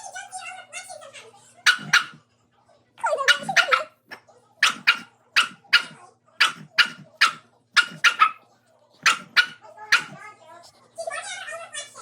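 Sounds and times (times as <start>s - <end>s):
dog barking: 1.6s - 2.2s, 3.0s - 4.0s, 4.6s - 8.4s, 9.0s - 10.2s.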